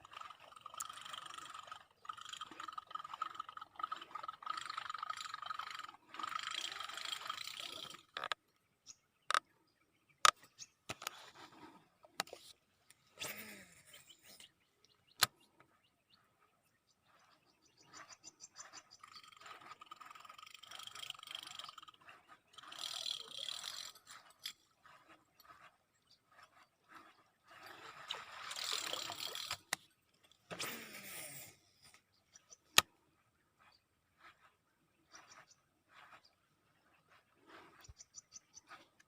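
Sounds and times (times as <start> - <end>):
fishing reel spool whirring: 0.0 - 8.4, 17.9 - 29.9
reel gears ticking: 0.0 - 8.4, 18.0 - 29.9.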